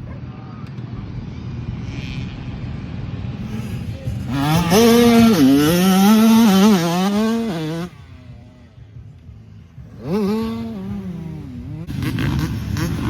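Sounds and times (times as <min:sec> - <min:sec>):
dirt bike engine revving: 0:03.4 - 0:08.0, 0:09.8 - 0:13.0.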